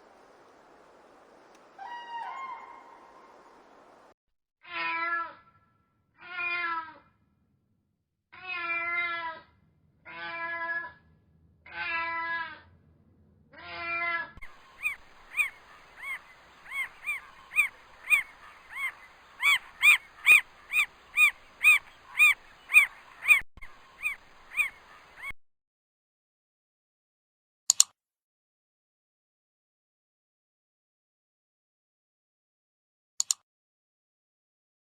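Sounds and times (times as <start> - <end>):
short high cat calls: 14.5 - 25.3.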